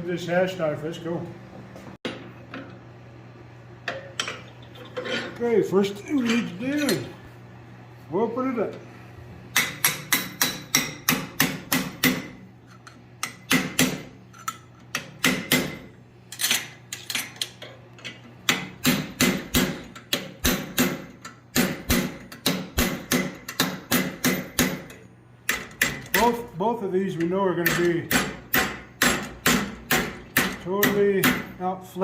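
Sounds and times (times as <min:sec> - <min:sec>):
hammer striking steel on anvil: 0:09.5 - 0:12.4, 0:13.2 - 0:14.1, 0:15.0 - 0:15.9, 0:27.6 - 0:31.6.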